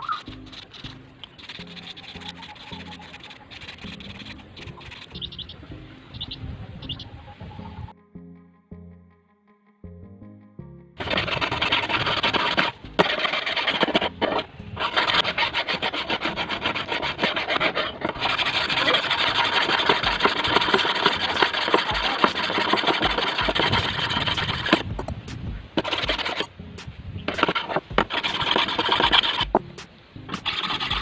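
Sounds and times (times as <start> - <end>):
scrubbing rust off scissors: 0.0 - 5.4, 11.0 - 24.8, 27.3 - 29.5.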